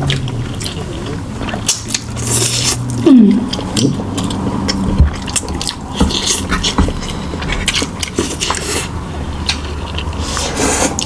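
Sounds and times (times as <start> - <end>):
voiced hum falling in pitch: 3.0 - 4.1.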